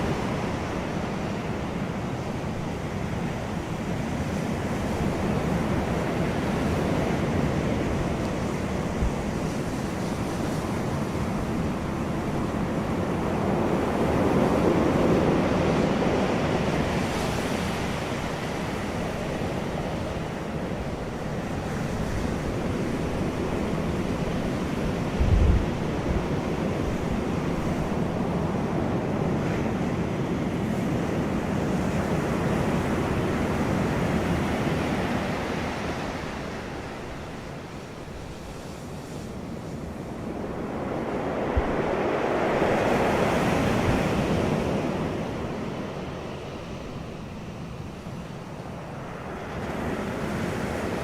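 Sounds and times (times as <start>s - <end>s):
wind blowing over microphone: 0.0s - 51.0s.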